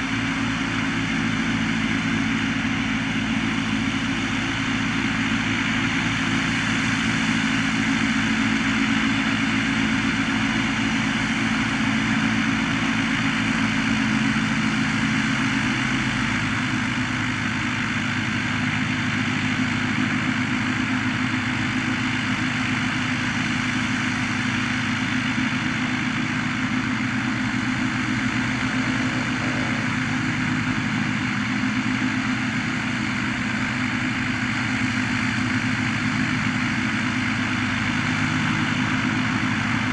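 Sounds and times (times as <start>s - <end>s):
light aircraft piston engine: 0.0s - 39.9s.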